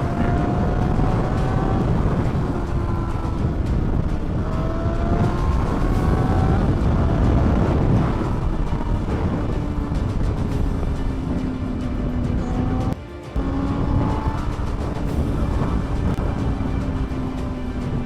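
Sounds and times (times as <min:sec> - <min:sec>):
motorcycle engine accelerating: 0:00.0 - 0:18.0
wind and road noise: 0:00.0 - 0:18.0.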